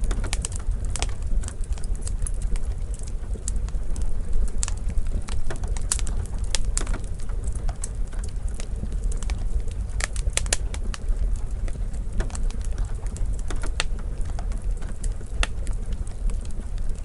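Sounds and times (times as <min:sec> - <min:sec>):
low steady rumble: 0:00.0 - 0:17.0
wood fire crackling: 0:00.0 - 0:17.0.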